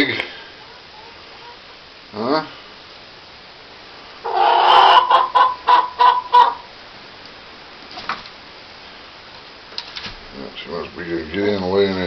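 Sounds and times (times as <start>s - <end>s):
hen clucking: 0.0s - 1.9s, 4.2s - 6.7s.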